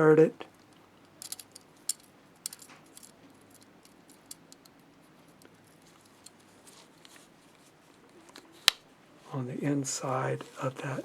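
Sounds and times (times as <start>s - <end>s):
small metal parts clicking: 0.6s - 6.5s.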